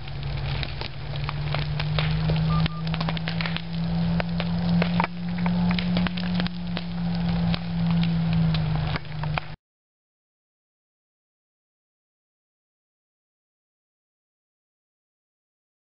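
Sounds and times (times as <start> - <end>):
fire crackling and popping: 0.0 - 9.6
steady low drone: 0.0 - 9.6.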